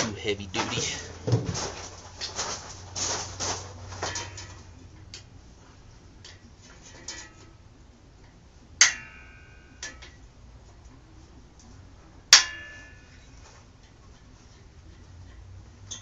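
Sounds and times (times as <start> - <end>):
ringing metallic clank: 8.8 - 10.2, 12.3 - 13.2.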